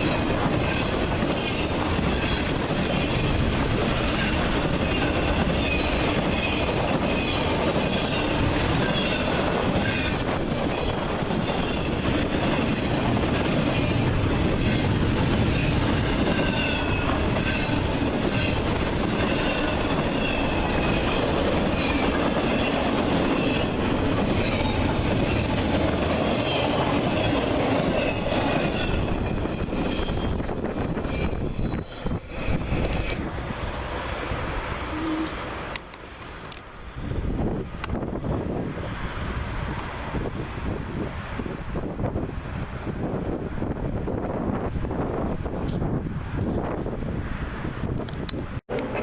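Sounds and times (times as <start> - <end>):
train cars rumbling past: 0.0 - 49.0
high wheel squeals: 28.0 - 33.2.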